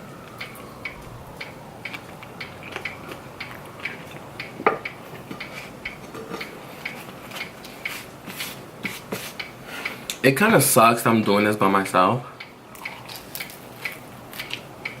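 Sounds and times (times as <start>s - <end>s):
chewing with mouth clicks: 0.4s - 8.0s, 12.4s - 15.0s.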